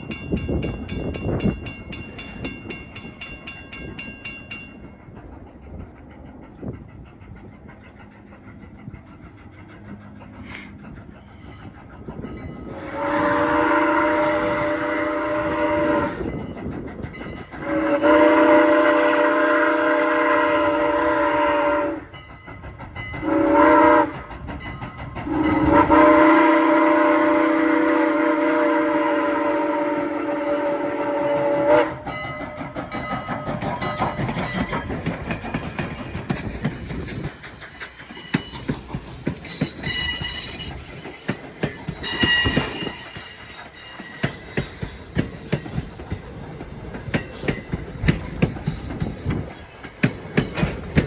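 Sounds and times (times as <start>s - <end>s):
chime steam whistle blasts: 12.6s - 16.4s, 17.6s - 22.2s, 23.2s - 24.2s, 25.3s - 32.5s, 36.8s - 50.9s.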